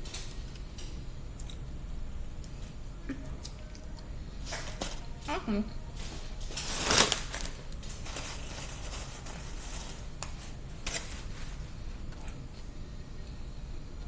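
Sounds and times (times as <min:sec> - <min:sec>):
crackling rustle: 0:06.0 - 0:12.7.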